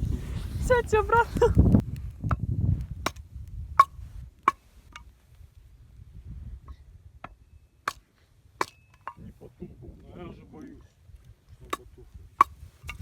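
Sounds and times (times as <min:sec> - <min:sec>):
campfire popping: 0:00.0 - 0:06.1.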